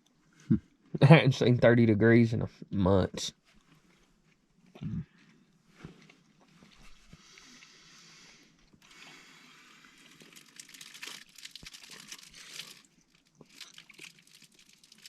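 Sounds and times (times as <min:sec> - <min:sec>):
rustling and crinkling handling: 0:03.4 - 0:07.6, 0:08.8 - 0:15.0
small crackles and crunches: 0:03.4 - 0:07.7, 0:08.6 - 0:15.0.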